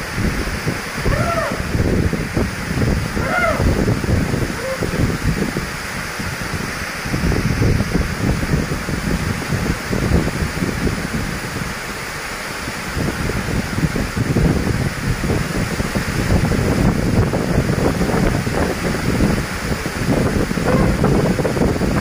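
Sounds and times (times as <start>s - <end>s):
steady rushing hiss: 0.0s - 22.0s
wind buffeting microphone: 0.0s - 22.0s.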